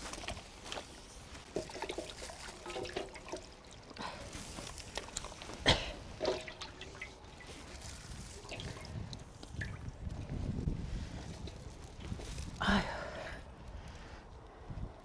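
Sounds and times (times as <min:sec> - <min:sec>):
liquid sloshing in a cauldron: 0:00.0 - 0:10.0.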